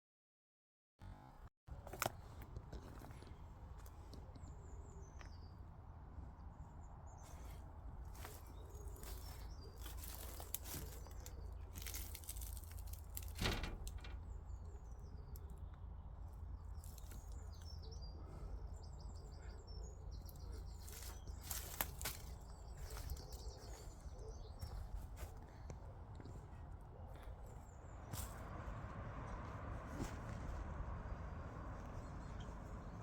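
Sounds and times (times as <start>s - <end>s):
small birds chirping: 1.0s - 33.0s
low steady rumble: 24.6s - 33.0s.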